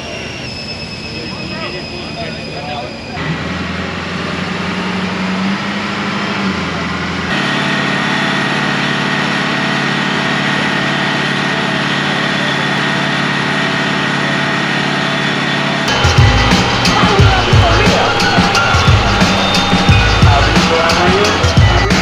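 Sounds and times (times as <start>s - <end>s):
diesel truck engine running: 3.2s - 22.0s
high whine: 7.3s - 22.0s.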